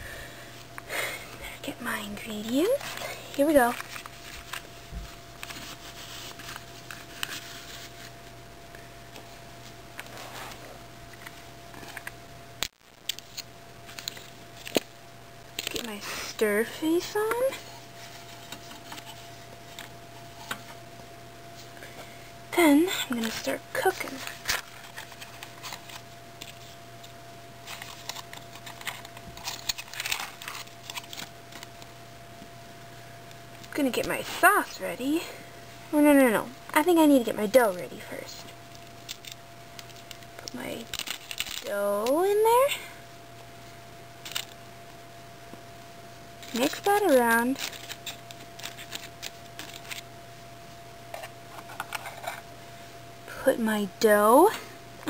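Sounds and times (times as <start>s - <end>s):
faint electrical hum: 0.0s - 55.0s
toy props clicking and rustling: 27.6s - 31.7s, 39.0s - 41.7s, 44.2s - 44.6s, 46.4s - 50.0s.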